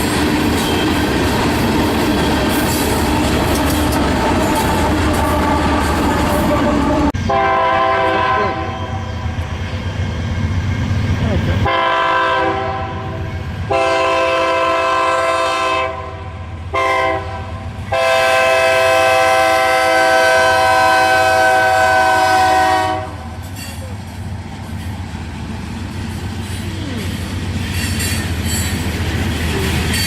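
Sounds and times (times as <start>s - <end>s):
locomotive and rail rumble: 0.0s - 30.0s
locomotive air horn blasts: 4.4s - 9.0s, 11.7s - 23.3s.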